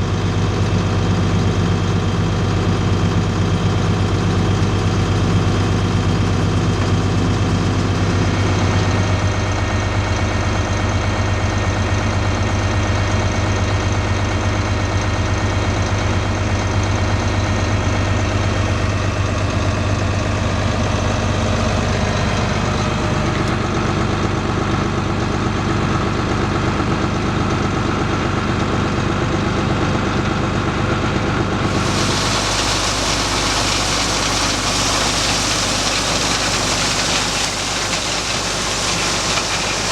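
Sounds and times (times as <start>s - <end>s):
heavy diesel engine running: 0.0s - 39.9s
high hiss: 31.7s - 39.9s.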